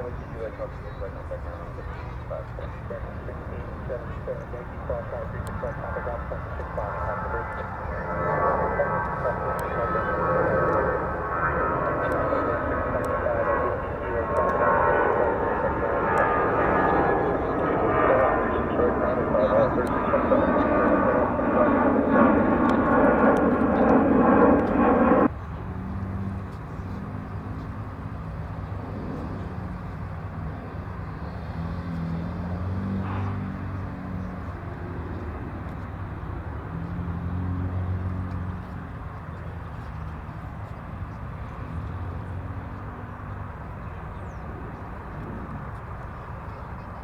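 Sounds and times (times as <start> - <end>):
radio noise hum with tones: 0.0 - 25.3
distant jet engines rumbling: 0.0 - 47.0.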